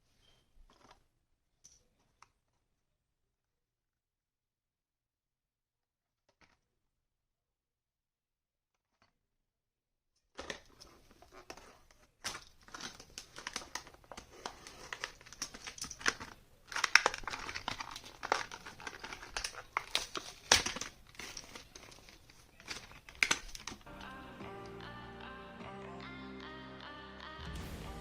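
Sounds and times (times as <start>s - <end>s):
packaging crinkling and tearing: 10.4s - 23.9s.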